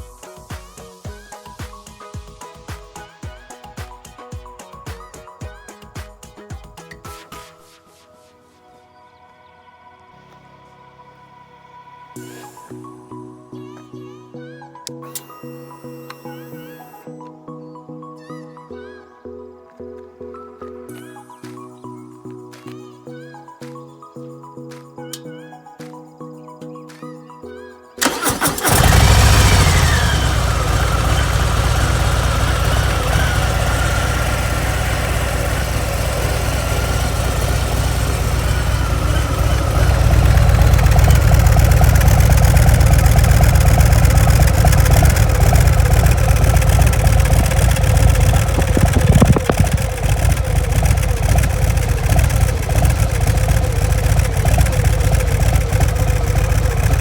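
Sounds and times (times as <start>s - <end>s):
motorcycle engine idling: 28.0s - 57.0s
starter motor cranking: 28.0s - 57.0s.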